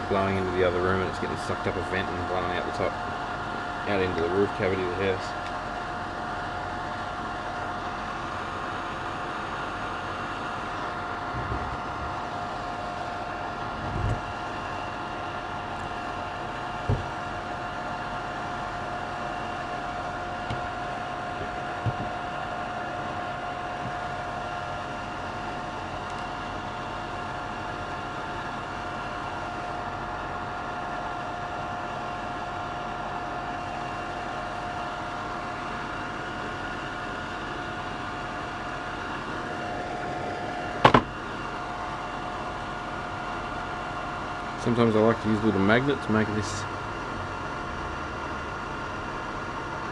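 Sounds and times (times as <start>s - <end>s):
extraction fan whining: 0.0s - 49.9s
light knocks: 16.9s - 17.1s.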